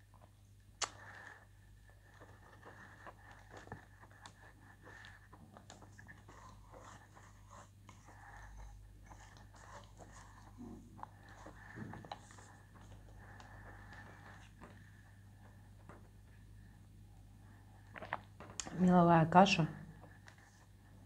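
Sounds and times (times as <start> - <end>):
person chewing: 17.8 - 18.7.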